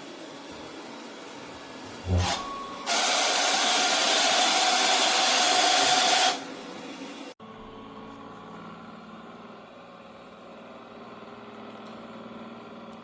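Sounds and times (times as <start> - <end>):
robot vacuum suction whine: 1.8 - 6.6.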